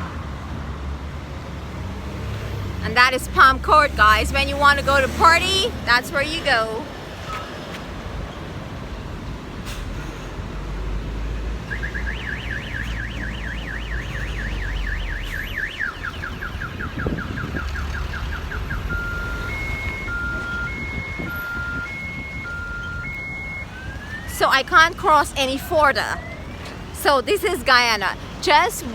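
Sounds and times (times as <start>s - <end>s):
low traffic rumble: 0.0s - 28.9s
car alarm warbling: 11.6s - 26.4s.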